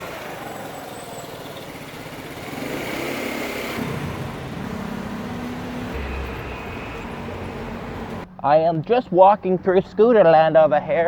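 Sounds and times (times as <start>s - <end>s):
motor scooters passing: 0.0s - 8.3s.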